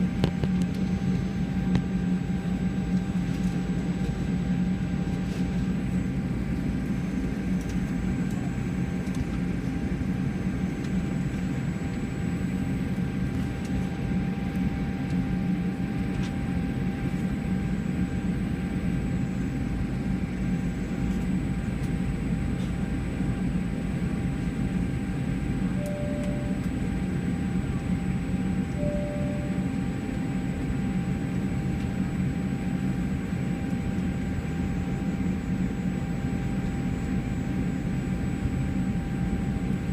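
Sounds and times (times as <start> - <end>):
aircraft cabin rumble: 0.0 - 39.9
faint steady whine: 0.0 - 39.9
short beeps: 25.8 - 26.8, 28.7 - 30.0.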